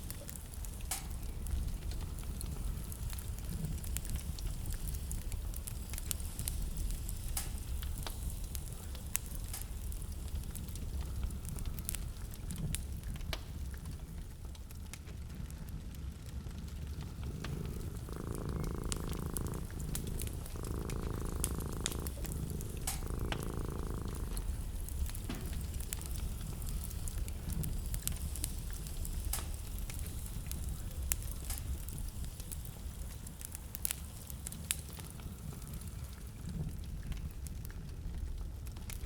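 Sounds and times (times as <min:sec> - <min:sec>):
wood fire crackling and popping: 0:00.0 - 0:39.0
steady hums: 0:17.0 - 0:26.7.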